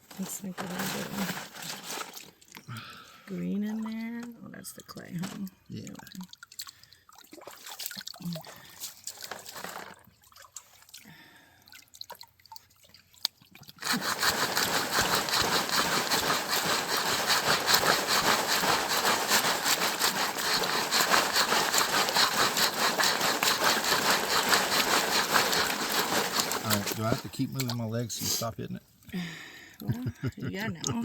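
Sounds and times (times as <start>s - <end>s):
gravel rattling in sifting screen: 0.0s - 2.2s, 13.8s - 28.4s
creek water trickling: 1.9s - 28.2s.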